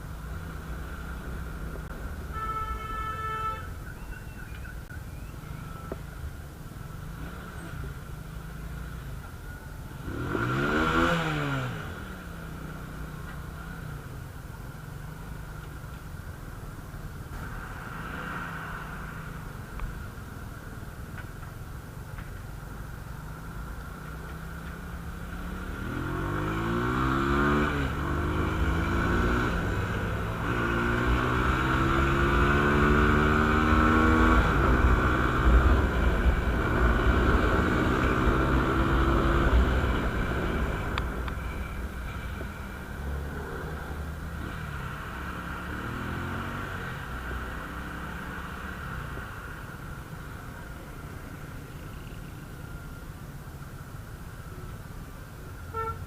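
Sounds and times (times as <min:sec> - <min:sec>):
motorcycle engine: 0:23.3 - 0:53.0.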